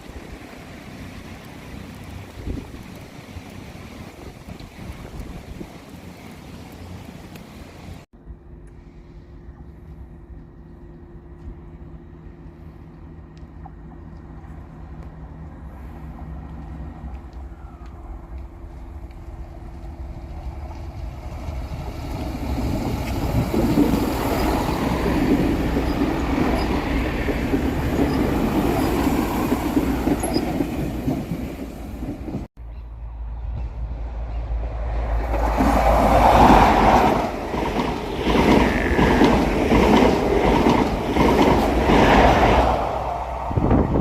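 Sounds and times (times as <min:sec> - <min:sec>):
trains passing at speed: 0:00.0 - 0:44.0
wheel clatter over rail joints: 0:18.6 - 0:32.5, 0:35.2 - 0:42.6.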